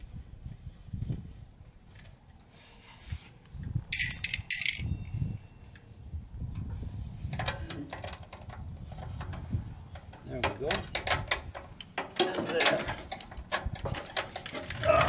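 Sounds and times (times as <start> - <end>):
handling and rustling noise: 0.0 - 15.0
metallic clinking and jingling: 3.9 - 5.8.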